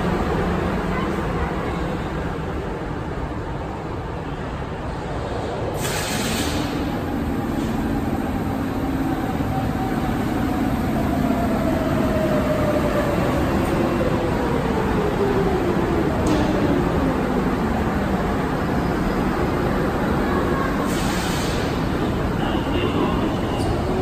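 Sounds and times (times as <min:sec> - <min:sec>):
subway train rumbling on rails: 0:00.0 - 0:24.0
air hiss: 0:05.8 - 0:06.9, 0:20.8 - 0:21.8.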